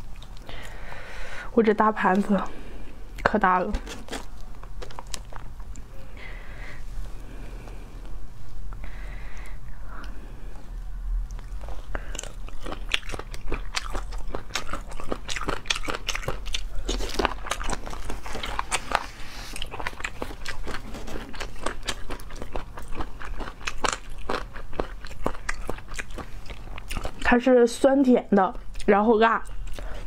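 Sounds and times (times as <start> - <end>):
crunchy wet chewing: 0.0 - 0.8, 2.8 - 5.9, 10.0 - 27.4.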